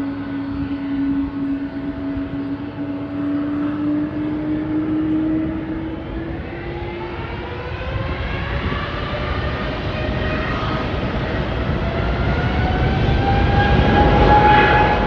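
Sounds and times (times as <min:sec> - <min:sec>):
jet engines humming: 0:00.0 - 0:15.0
jet engines spooling up: 0:00.0 - 0:15.0
low rumbling noise: 0:00.0 - 0:15.0.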